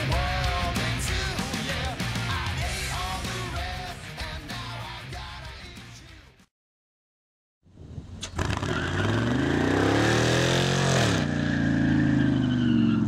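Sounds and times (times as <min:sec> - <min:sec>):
truck engine revving: 0:08.2 - 0:13.0.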